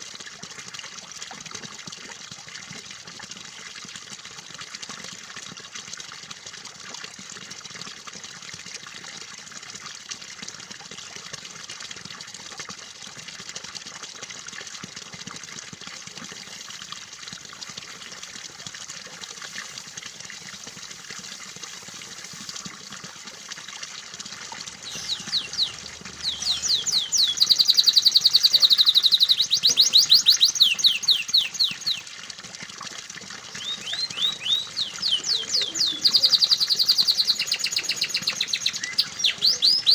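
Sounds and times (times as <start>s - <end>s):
trickling water: 0.0s - 39.9s
canary singing trills: 24.7s - 32.0s, 33.5s - 39.9s.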